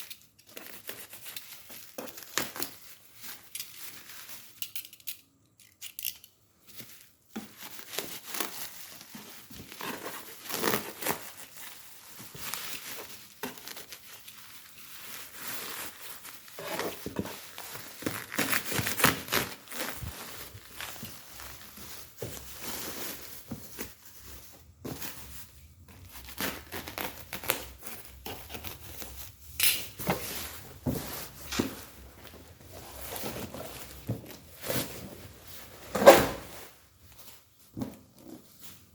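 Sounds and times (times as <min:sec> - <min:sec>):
packaging crinkling and rustling: 0:00.0 - 0:05.1, 0:06.6 - 0:38.9
packaging tearing: 0:07.5 - 0:21.8.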